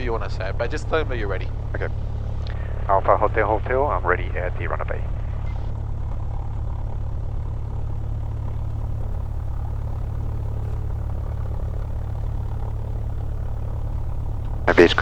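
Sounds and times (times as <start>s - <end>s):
propeller plane engine idling: 0.0s - 15.0s.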